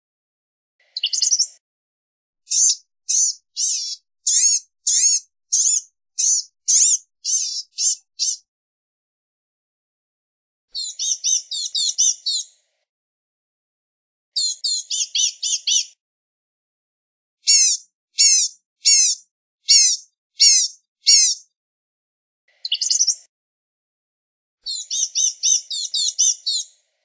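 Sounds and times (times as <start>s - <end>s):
songbird singing high thin notes: 2.5s - 8.4s, 17.5s - 21.4s.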